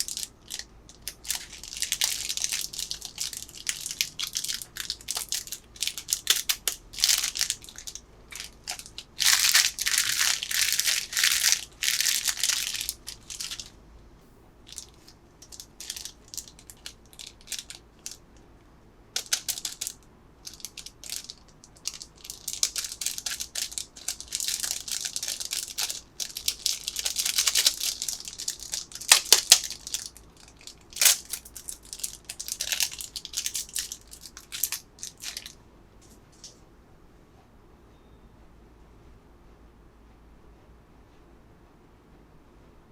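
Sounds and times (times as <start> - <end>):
plastic packaging crinkling: 0.0 - 13.8, 14.7 - 18.2, 19.2 - 35.6.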